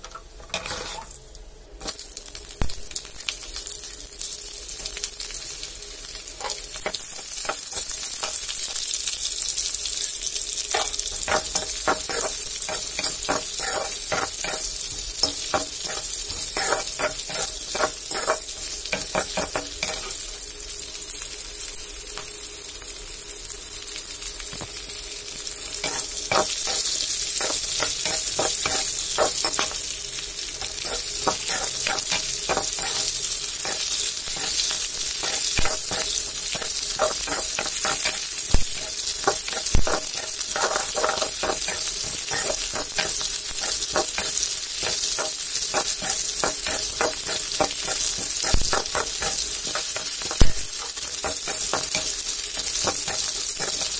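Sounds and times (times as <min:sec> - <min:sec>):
spatula scraping a wok: 0:00.0 - 0:01.2, 0:06.4 - 0:08.5, 0:10.7 - 0:20.2, 0:25.8 - 0:53.9
chillies sizzling in a wok: 0:00.0 - 0:53.9.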